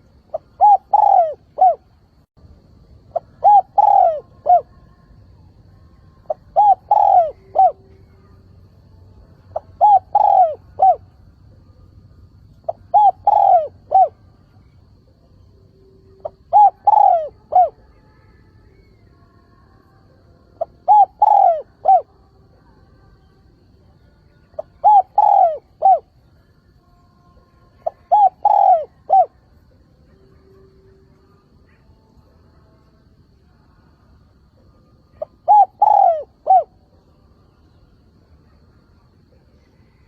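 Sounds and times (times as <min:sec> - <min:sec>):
dove cooing: 0:00.0 - 0:01.9, 0:03.1 - 0:04.8, 0:06.3 - 0:08.3, 0:09.5 - 0:11.1, 0:12.6 - 0:14.3, 0:16.1 - 0:18.0, 0:20.6 - 0:22.1, 0:24.6 - 0:26.2, 0:27.7 - 0:29.4, 0:35.1 - 0:36.8.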